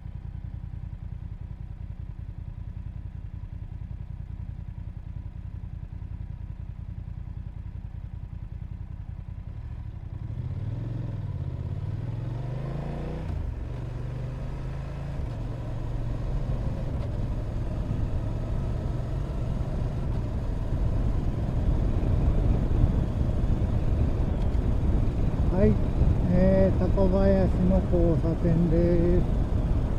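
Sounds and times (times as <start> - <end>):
motorcycle engine while riding: 0.0 - 29.9
rushing wind: 19.7 - 29.9.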